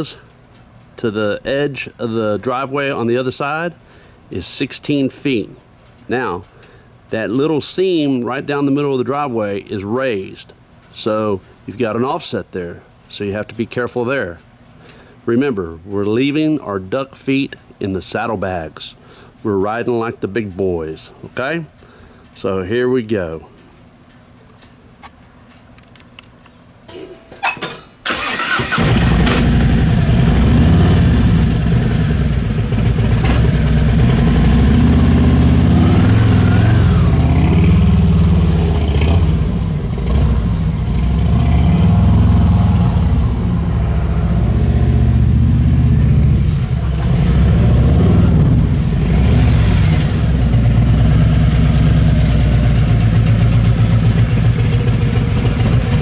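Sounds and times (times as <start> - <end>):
motorcycle engine running: 28.6 - 56.0.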